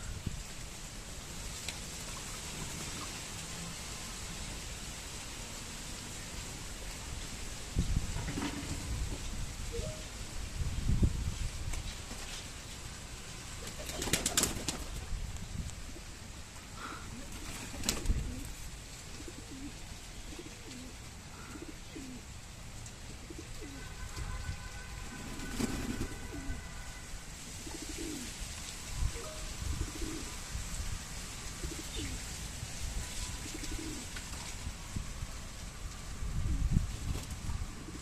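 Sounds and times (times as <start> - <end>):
pigeons cooing: 16.8 - 22.3, 23.2 - 23.9, 27.6 - 28.3, 29.6 - 30.4, 31.5 - 32.2, 33.4 - 34.2.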